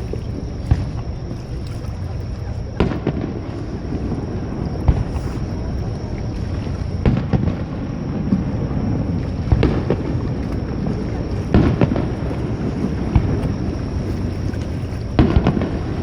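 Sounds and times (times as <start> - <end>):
rumble of rolling fireworks booms: 2.7 - 14.4, 15.0 - 16.0
sharp fireworks bangs: 4.8 - 5.4, 7.0 - 8.4, 9.5 - 10.2, 11.5 - 13.4, 15.2 - 16.0.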